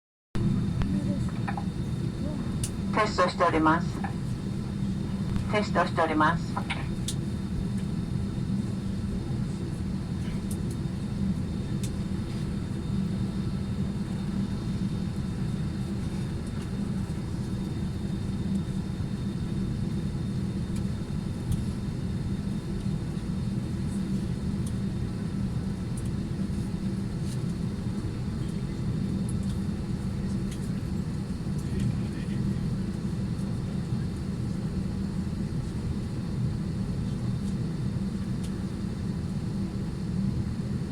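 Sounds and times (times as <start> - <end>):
airliner engine drone: 0.4 - 40.9.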